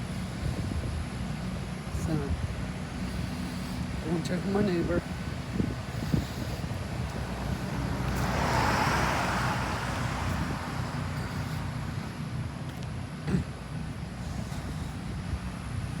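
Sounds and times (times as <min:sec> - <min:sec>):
car passing by: 0:07.0 - 0:12.2.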